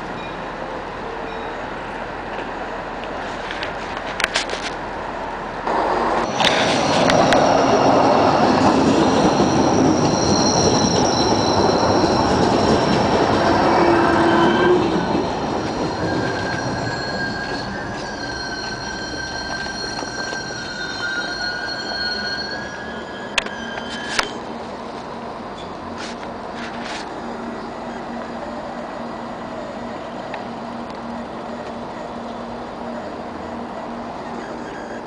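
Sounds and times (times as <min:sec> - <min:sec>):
diesel train running past: 0:04.6 - 0:35.0
high wheel squeal: 0:06.2 - 0:24.5, 0:32.9 - 0:35.0.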